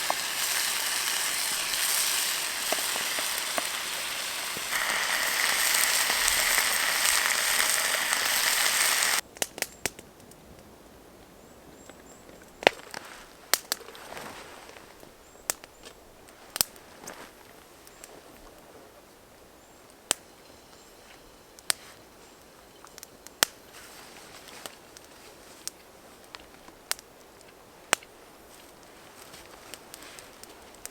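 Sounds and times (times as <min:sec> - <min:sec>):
bacon sizzling in a pan: 0:00.0 - 0:09.2.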